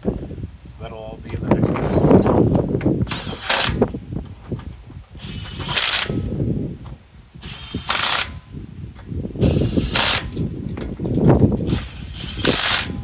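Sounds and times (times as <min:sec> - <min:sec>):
ratchet wrench clicking: 0:05.2 - 0:06.4, 0:07.4 - 0:08.4, 0:09.4 - 0:10.5, 0:11.1 - 0:13.0.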